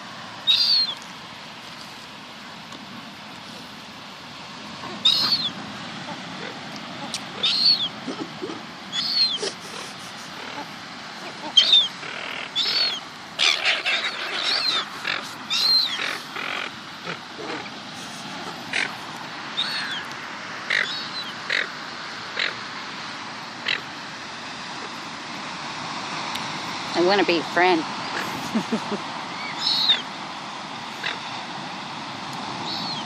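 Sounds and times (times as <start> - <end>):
gulls squawking: 0.4 - 1.0, 4.7 - 22.7, 29.3 - 30.1, 32.6 - 33.0.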